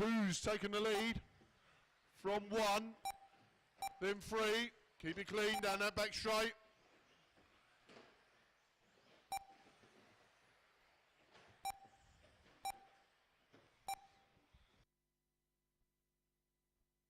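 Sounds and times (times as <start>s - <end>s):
short electronic beeps: 3.0s - 4.0s, 9.3s - 9.6s, 11.6s - 12.0s, 12.6s - 13.0s, 13.9s - 14.3s.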